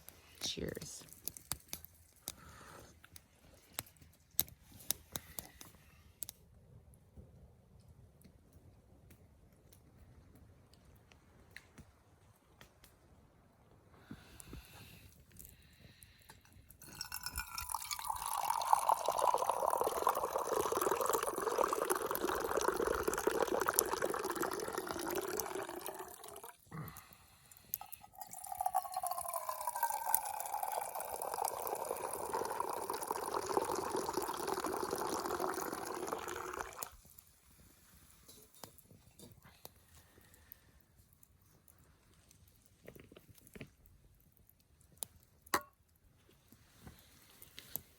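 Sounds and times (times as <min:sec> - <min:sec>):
tea pouring into a cup: 0:16.7 - 0:37.3.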